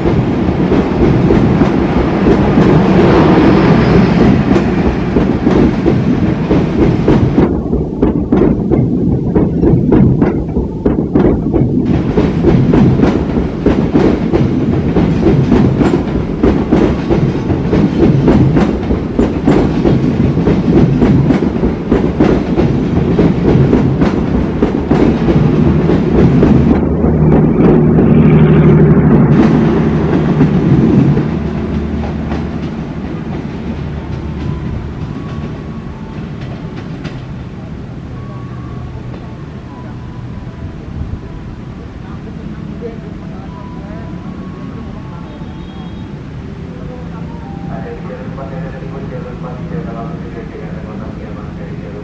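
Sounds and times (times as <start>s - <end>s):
train wheels clattering over rail joints: 0.0s - 28.1s, 29.2s - 37.5s.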